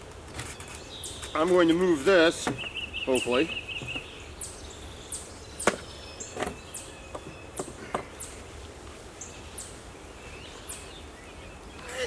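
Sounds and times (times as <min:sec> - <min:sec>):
small bird chirping: 0:00.5 - 0:08.6
wooden knocks on beehive: 0:02.4 - 0:02.8, 0:03.8 - 0:04.1, 0:05.6 - 0:08.1.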